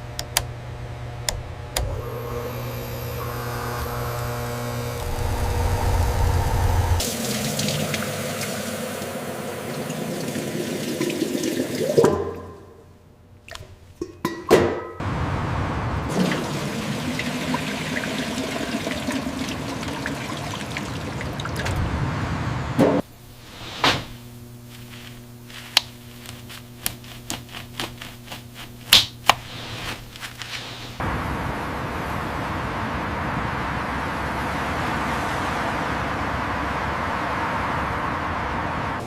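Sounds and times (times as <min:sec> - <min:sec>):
steady low hum: 0:00.0 - 0:10.4, 0:21.8 - 0:34.7
liquid pouring and splashing: 0:16.1 - 0:21.8.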